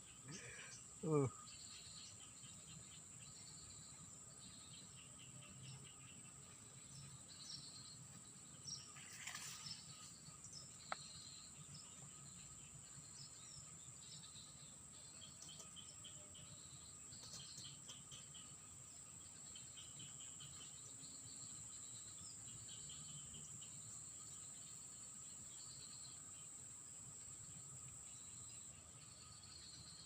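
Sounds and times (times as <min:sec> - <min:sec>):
insects droning: 0:00.0 - 0:30.0
small birds chirping: 0:00.0 - 0:30.0
brief rustle: 0:09.0 - 0:09.8.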